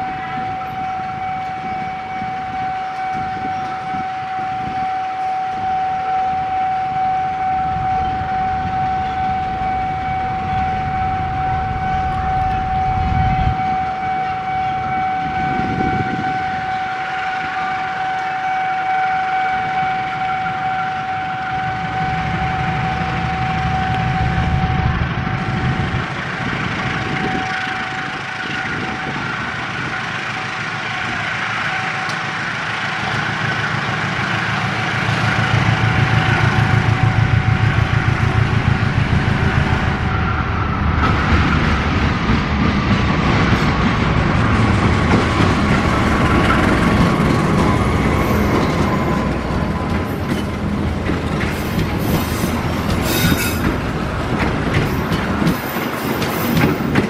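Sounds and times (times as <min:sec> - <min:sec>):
locomotive engine rumble: 0:00.0 - 0:57.0
wheels squealing on rails: 0:00.0 - 0:57.0
high steady tone: 0:20.9 - 0:26.1, 0:27.0 - 0:41.9.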